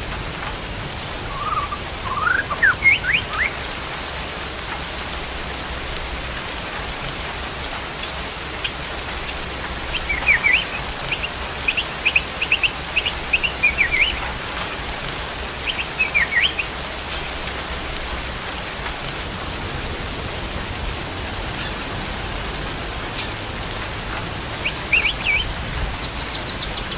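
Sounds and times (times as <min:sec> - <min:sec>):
rain hissing: 0:00.0 - 0:26.9
bird chirping: 0:01.2 - 0:03.6, 0:09.9 - 0:14.8, 0:15.6 - 0:17.4, 0:21.5 - 0:21.8, 0:23.0 - 0:23.4, 0:24.6 - 0:26.9.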